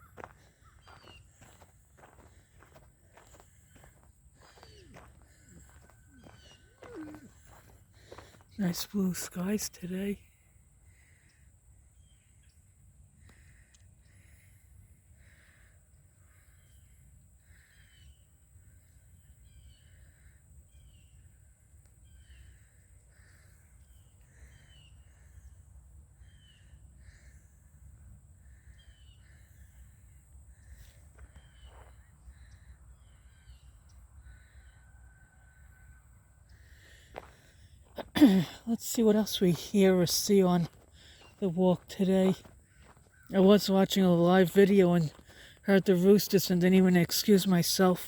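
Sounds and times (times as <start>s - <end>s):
bird chirps: 0.0s - 2.2s, 3.2s - 8.6s
crows cawing: 17.4s - 18.0s, 34.2s - 36.0s.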